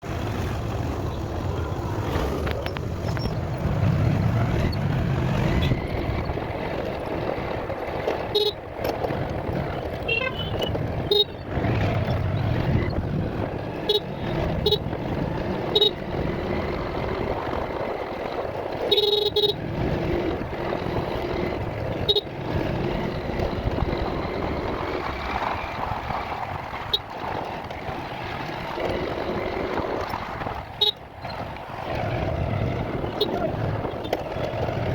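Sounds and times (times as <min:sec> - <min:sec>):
motorbike engine: 0:00.0 - 0:34.9
horn honks: 0:08.3 - 0:08.6, 0:10.0 - 0:11.4, 0:13.8 - 0:15.0, 0:15.7 - 0:16.1, 0:18.8 - 0:19.8, 0:22.0 - 0:22.3, 0:30.8 - 0:31.0, 0:33.1 - 0:33.5.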